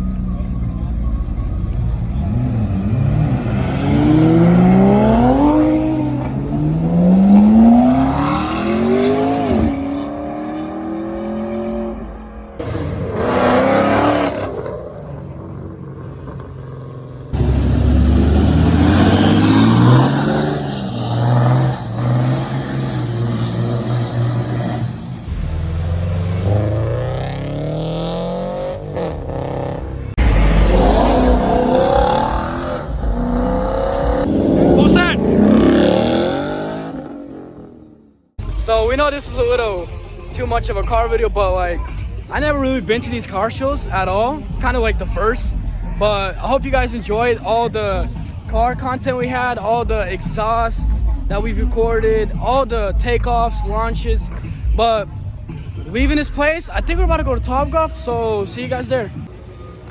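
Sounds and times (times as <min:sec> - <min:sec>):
car engines accelerating hard: 0:00.0 - 0:58.0.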